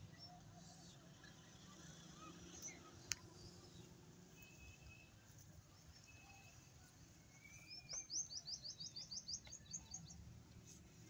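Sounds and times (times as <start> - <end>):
faint thin whistles: 6.0 - 9.1.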